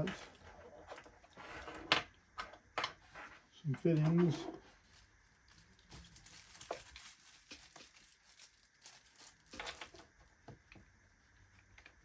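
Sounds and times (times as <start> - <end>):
bag rustling: 4.8 - 10.0.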